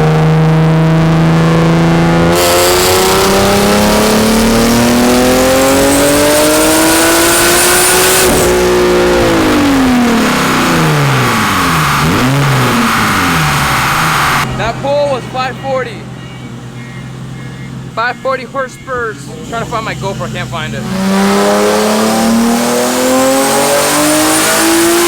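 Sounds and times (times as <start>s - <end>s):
car engine revving: 0.0s - 25.0s
thin high turbo whistle: 12.9s - 20.2s.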